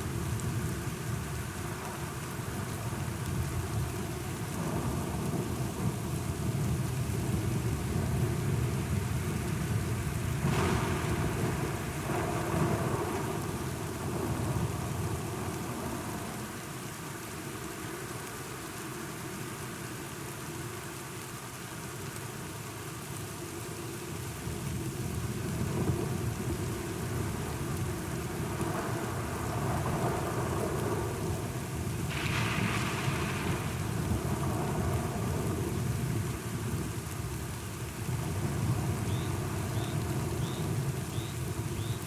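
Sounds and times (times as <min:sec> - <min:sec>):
steady rain: 0:00.0 - 0:42.0
low rolling thunder: 0:10.3 - 0:16.0, 0:28.2 - 0:36.9.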